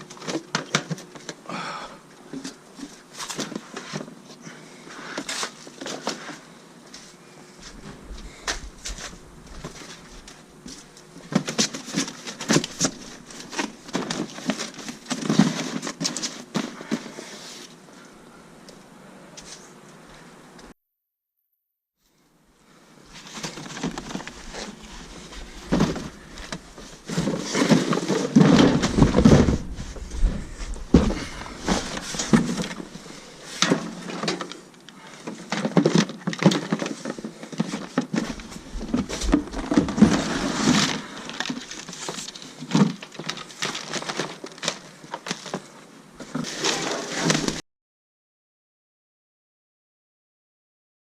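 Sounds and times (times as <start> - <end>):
cardboard and plastic rustling: 0.0 - 1.4, 2.3 - 17.8, 23.0 - 47.6
knocks and thumps: 25.4 - 33.0.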